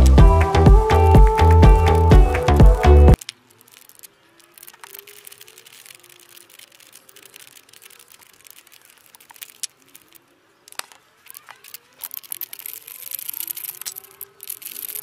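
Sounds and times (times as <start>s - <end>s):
faint background noise: 0.7s - 15.0s
clicks and knocks of handling: 3.2s - 15.0s.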